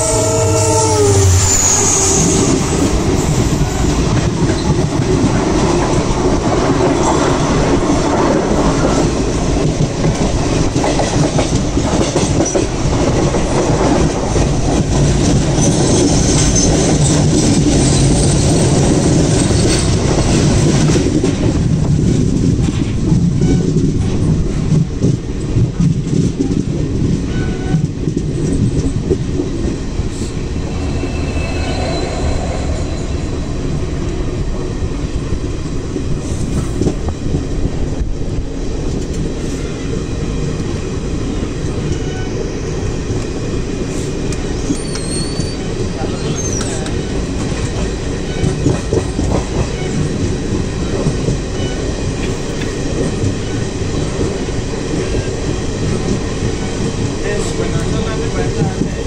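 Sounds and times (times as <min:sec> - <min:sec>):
high squeaks: 0:00.0 - 0:02.9, 0:30.6 - 0:34.0
train wheels rumbling on rails: 0:00.0 - 0:59.0.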